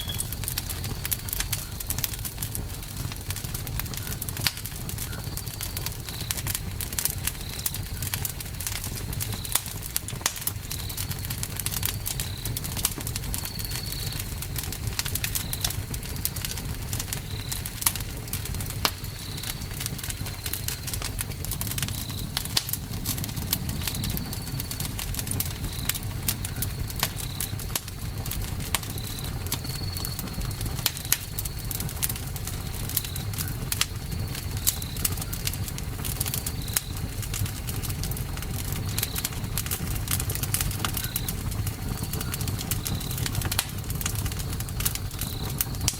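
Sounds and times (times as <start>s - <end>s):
short high chirp: 0.0s - 0.3s
campfire crackling and popping: 0.0s - 45.9s
low steady rumble: 19.5s - 29.2s.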